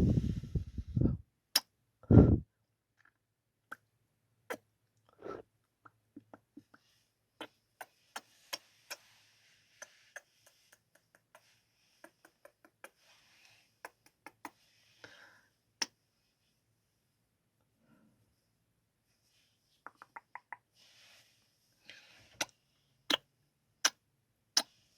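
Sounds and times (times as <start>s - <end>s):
faint breathy hiss: 6.7s - 16.5s, 20.7s - 23.2s
lips kissing smacks: 9.8s - 13.0s, 13.8s - 14.6s, 19.8s - 20.6s.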